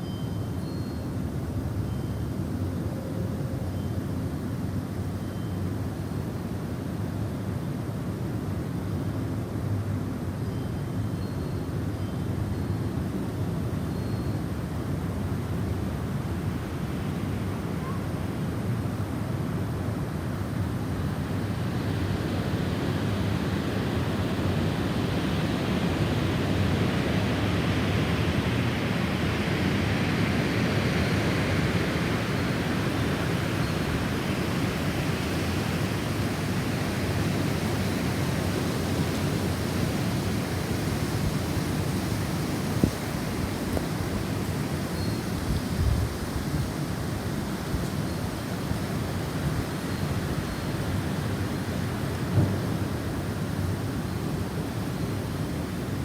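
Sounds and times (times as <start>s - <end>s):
snowstorm wind blowing: 21.2s - 56.0s.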